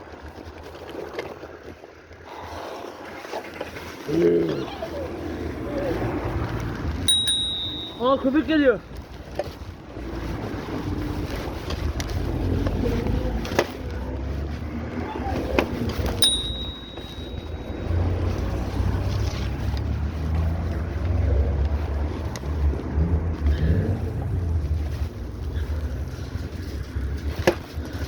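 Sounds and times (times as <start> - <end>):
bicycle bell ding: 7.1 - 8.5, 16.2 - 18.2.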